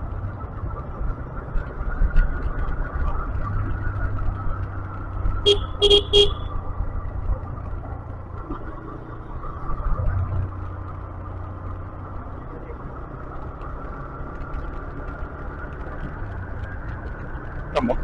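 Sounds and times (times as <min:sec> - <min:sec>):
motorcycle engine running: 0:01.0 - 0:18.0
horn beeps: 0:05.4 - 0:06.5.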